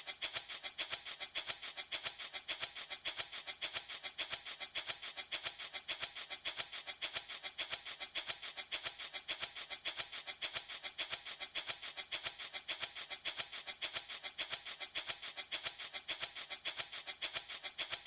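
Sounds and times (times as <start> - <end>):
baby rattle shaking: 0.0 - 18.0.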